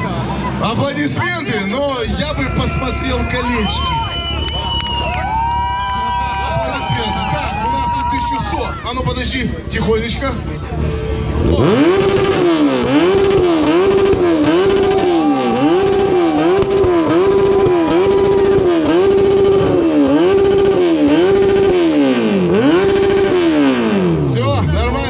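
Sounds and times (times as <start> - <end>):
motorcycle revving hard: 10.6 - 25.0.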